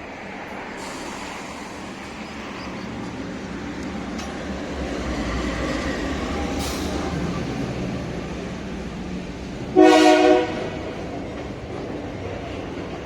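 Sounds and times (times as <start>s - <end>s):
freight train rumbling past: 0.0s - 13.0s
train horn blast: 9.7s - 11.1s.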